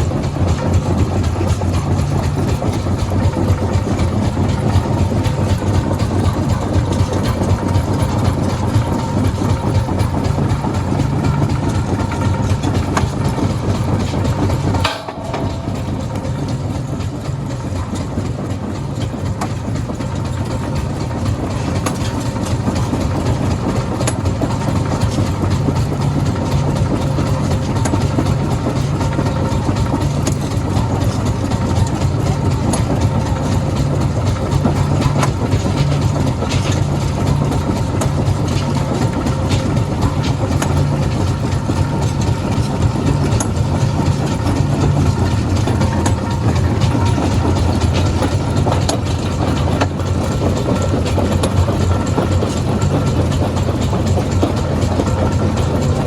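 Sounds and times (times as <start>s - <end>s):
heavy machinery engine hum: 0.0s - 56.0s
sharp knocks: 14.0s - 17.7s.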